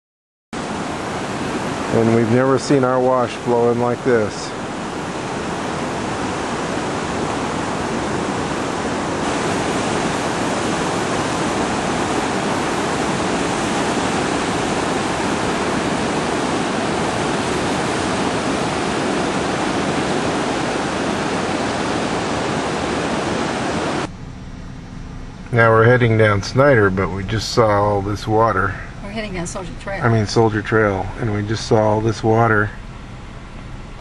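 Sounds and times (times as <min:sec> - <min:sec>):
floodwater rushing: 0:00.6 - 0:24.1, 0:25.6 - 0:32.9.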